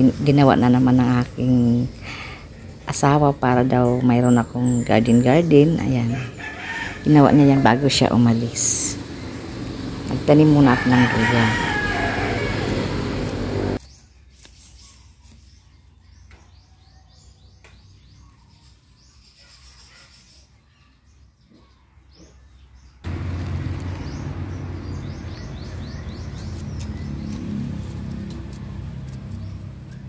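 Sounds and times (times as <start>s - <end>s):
small birds chirping: 0.0s - 30.0s
loud steady noise: 7.3s - 13.8s.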